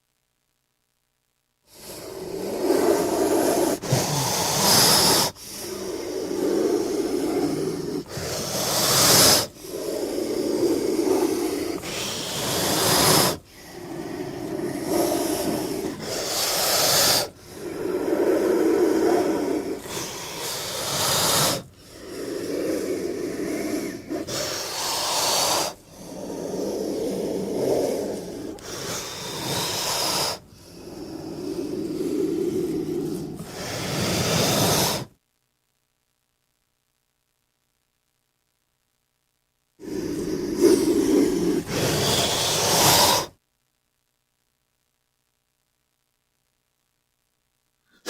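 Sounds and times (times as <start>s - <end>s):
snake hissing: 1.7s - 35.1s, 39.8s - 43.4s.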